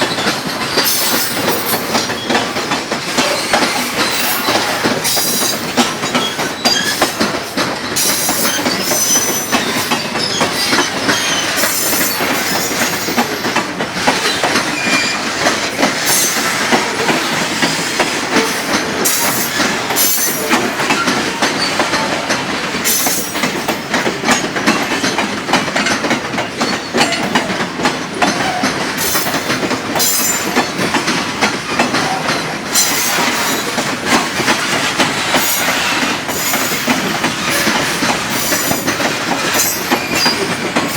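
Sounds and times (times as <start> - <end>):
train wheels clattering on rails: 0.0 - 40.9
high-pitched wheel squeal: 8.4 - 12.6, 14.3 - 15.3.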